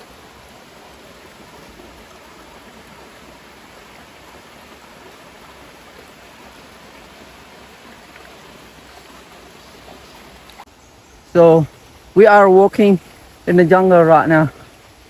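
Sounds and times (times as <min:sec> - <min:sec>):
water rushing: 0:00.0 - 0:10.7, 0:11.3 - 0:15.0.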